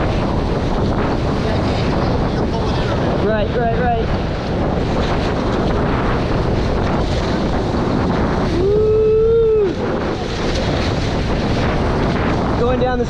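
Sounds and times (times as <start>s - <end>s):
water rushing past hulls: 0.0s - 13.0s
wind buffeting microphone: 0.0s - 13.0s
person whooping: 8.5s - 10.1s.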